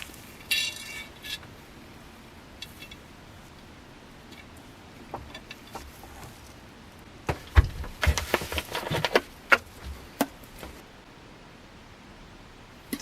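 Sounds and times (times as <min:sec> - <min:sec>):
workshop handling clatter: 0:07.2 - 0:10.8.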